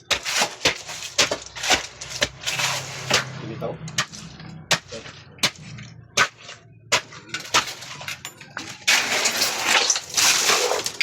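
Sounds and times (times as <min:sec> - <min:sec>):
rattling scraping clatter: 0:00.2 - 0:04.7, 0:07.3 - 0:11.0
sharp hard knocks: 0:03.1 - 0:07.7.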